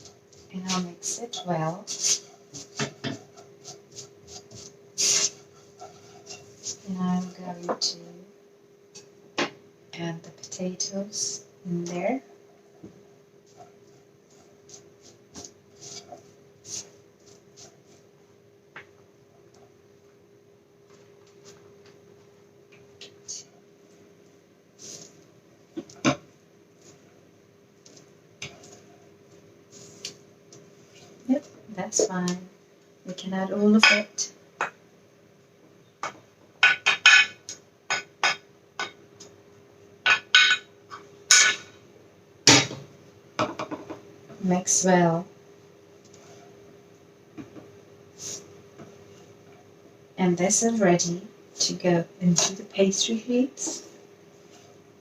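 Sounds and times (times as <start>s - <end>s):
faint steady hum: 0.0s - 55.0s
utensil knocking against a wok: 40.1s - 40.7s
potatoes knocking and scraping in wok: 40.1s - 41.7s.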